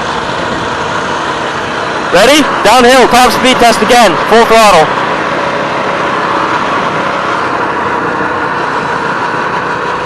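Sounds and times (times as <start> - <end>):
minibike engine at full throttle: 0.0 - 10.0.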